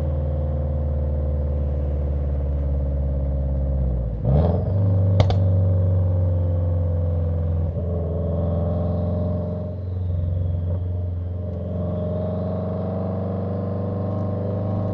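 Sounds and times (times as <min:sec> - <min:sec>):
car engine idling rumble: 0:00.0 - 0:04.2, 0:04.9 - 0:07.8.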